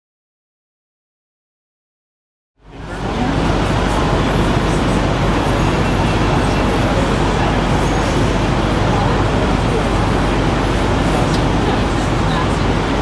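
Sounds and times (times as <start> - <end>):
faint voices: 2.6 - 13.0
street traffic rumble: 2.6 - 13.0.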